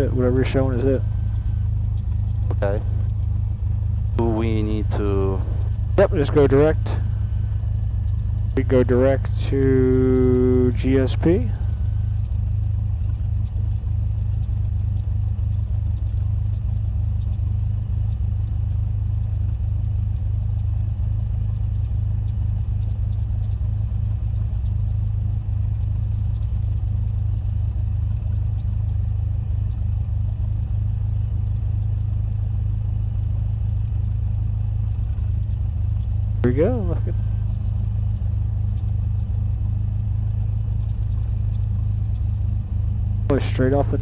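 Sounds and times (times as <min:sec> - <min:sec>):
airplane engine and propeller droning: 0:00.0 - 0:44.0.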